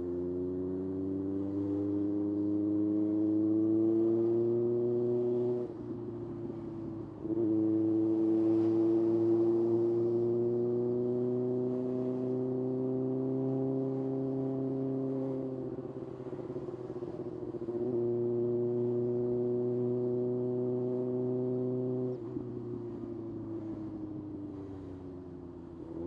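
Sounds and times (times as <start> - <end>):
motorcycle engine running: 14.7 - 26.0.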